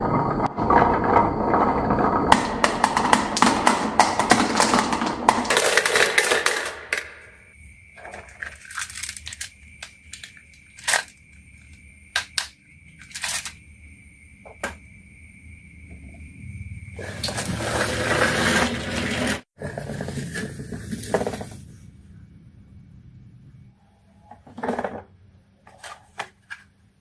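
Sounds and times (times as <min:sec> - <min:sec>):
marbles rattling down a track: 0:00.4 - 0:07.4.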